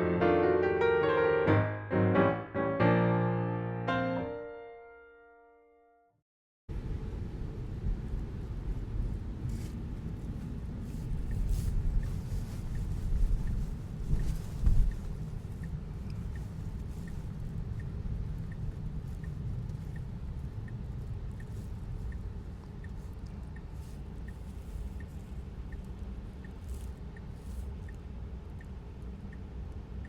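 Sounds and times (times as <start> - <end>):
low car cabin rumble: 6.7 - 30.0
turn signal ticking: 11.1 - 30.0.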